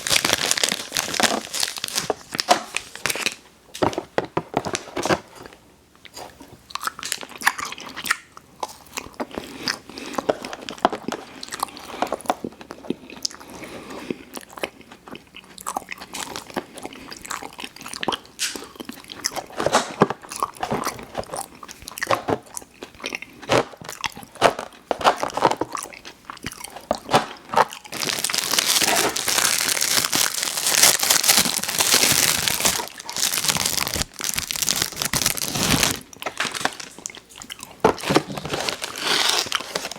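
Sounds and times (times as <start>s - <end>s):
packaging rustling: 0.0s - 5.4s, 26.6s - 37.2s, 37.8s - 39.9s
crunching and wet chewing of sweets: 4.7s - 39.9s.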